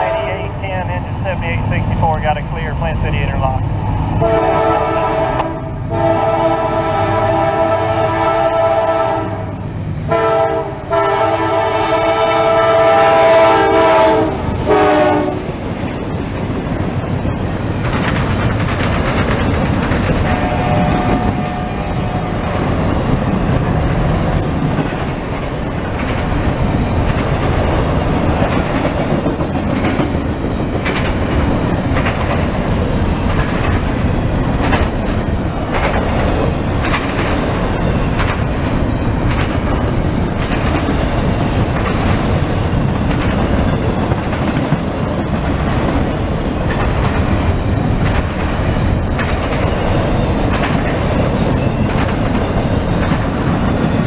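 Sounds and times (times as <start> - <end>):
freight cars rumbling and clacking: 0.0 - 4.2, 15.4 - 54.0
locomotive air horn blasts: 4.2 - 9.5, 10.1 - 15.4, 20.3 - 22.0.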